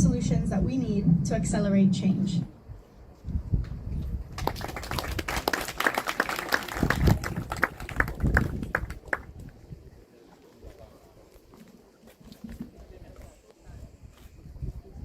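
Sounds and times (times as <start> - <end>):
audience applauding: 4.3 - 9.3.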